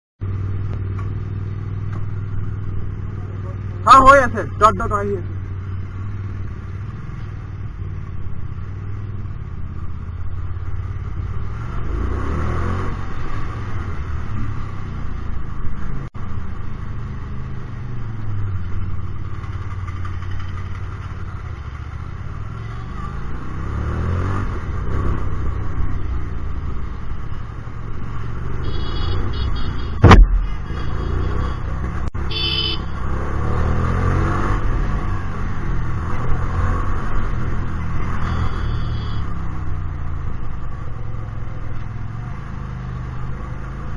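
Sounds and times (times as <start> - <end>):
motorcycle engine revving: 17.5 - 43.9
sharp thump: 29.9 - 30.5.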